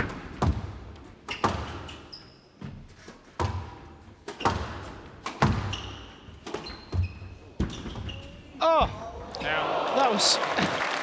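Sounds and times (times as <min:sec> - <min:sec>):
shoes squeaking on court: 0:00.4 - 0:08.6
squash ball knocks: 0:04.3 - 0:05.7.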